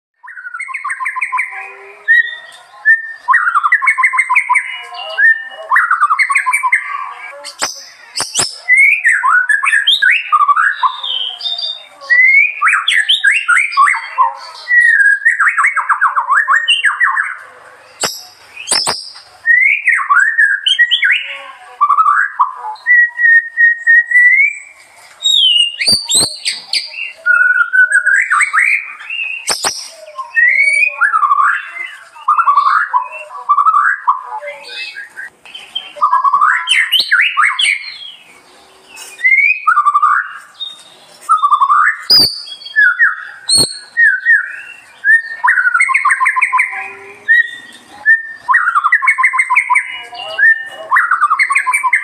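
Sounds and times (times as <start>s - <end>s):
songbird singing: 0.2s - 52.0s
sharp clicks: 18.0s - 19.2s, 29.5s - 29.9s.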